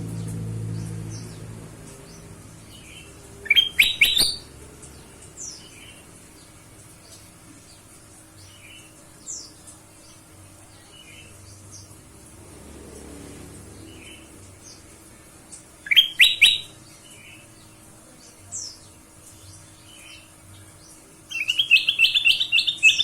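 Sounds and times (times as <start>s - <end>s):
bulbul calling: 2.7s - 4.5s, 15.8s - 17.4s, 21.3s - 23.0s.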